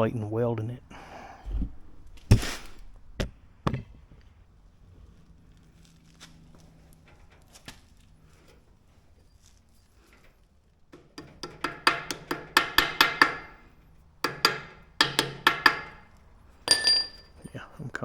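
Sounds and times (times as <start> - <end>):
hammer striking steel: 11.0 - 13.6, 14.2 - 17.3.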